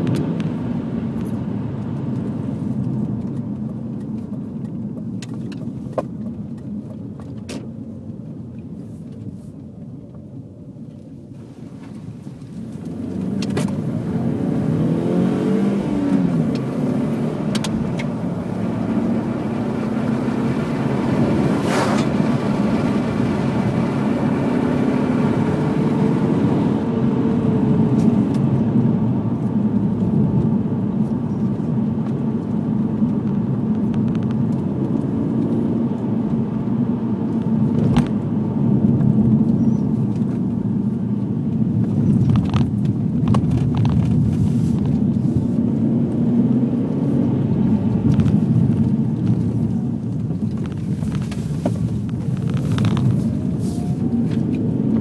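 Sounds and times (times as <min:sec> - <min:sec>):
road noise: 0:00.0 - 0:55.0
car engine accelerating: 0:11.3 - 0:55.0.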